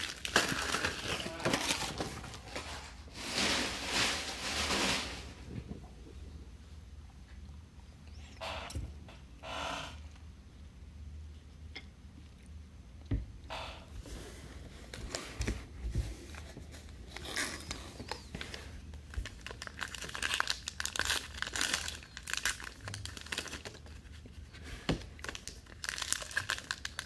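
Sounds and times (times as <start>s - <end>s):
wrappers tearing and crinkling: 0.0s - 5.4s, 16.4s - 24.2s, 25.2s - 27.0s.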